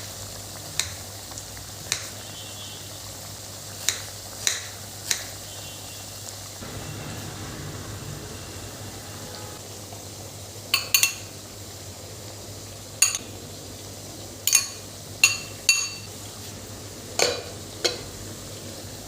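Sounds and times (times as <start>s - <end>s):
metal spoon clinking on pan: 10.8s - 11.3s, 13.0s - 13.2s, 14.5s - 16.1s.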